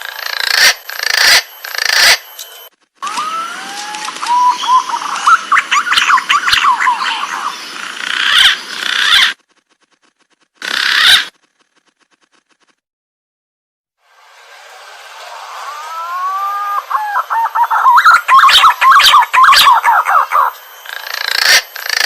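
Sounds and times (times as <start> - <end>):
pigeon whistling calls: 3.0 - 7.6, 15.9 - 20.6.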